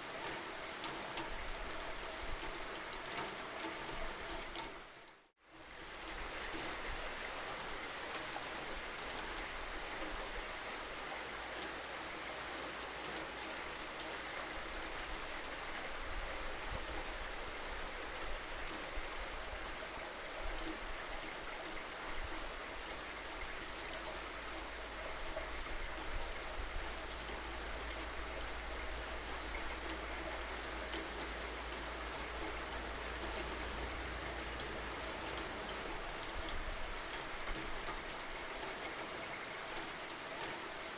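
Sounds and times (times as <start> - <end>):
steady rainfall: 0.0 - 40.9.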